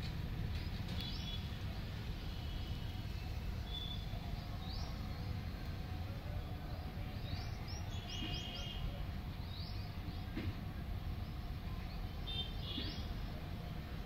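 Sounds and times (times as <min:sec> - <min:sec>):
small birds chirping: 0:00.5 - 0:01.6, 0:03.1 - 0:05.8, 0:06.7 - 0:10.4, 0:11.2 - 0:13.3.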